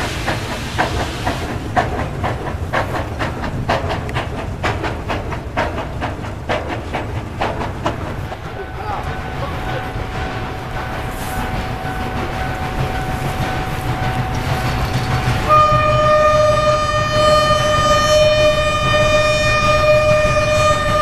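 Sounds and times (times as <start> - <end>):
steam locomotive rumble: 0.0 - 21.0
piercing steam whistle: 14.5 - 21.0.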